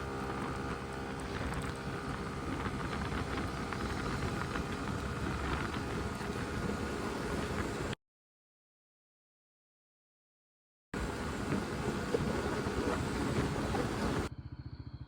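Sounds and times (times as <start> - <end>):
road noise: 0.0 - 8.0, 11.0 - 14.6
scooter engine running: 0.0 - 8.0, 11.0 - 15.0
wind rush on microphone: 0.0 - 8.0, 11.0 - 14.3.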